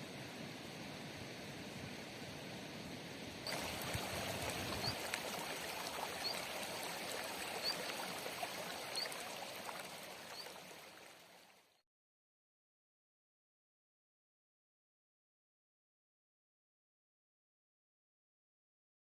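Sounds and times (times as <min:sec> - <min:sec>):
river water rushing: 0:03.5 - 0:11.6
bird chirping: 0:04.5 - 0:05.1, 0:06.1 - 0:08.0.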